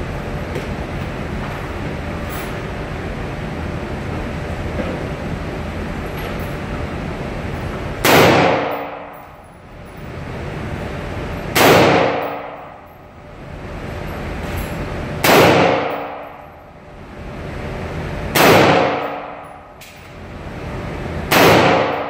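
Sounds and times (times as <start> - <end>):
rifle shots: 8.0 - 9.1, 11.6 - 12.6, 15.2 - 16.2, 18.4 - 19.4, 21.3 - 22.0.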